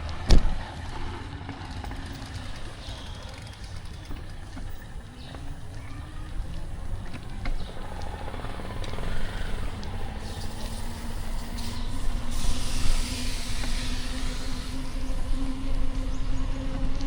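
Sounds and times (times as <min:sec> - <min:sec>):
city street traffic: 0:00.0 - 0:17.0
hiss: 0:07.8 - 0:15.6.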